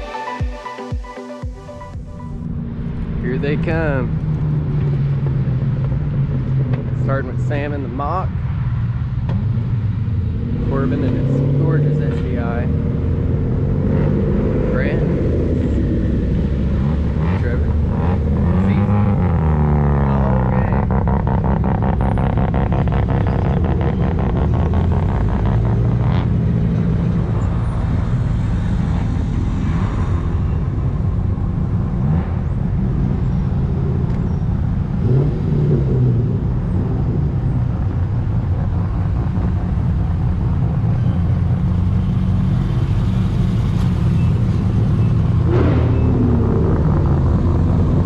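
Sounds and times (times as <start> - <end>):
road noise: 0.0 - 48.0
car engine running: 1.9 - 29.4.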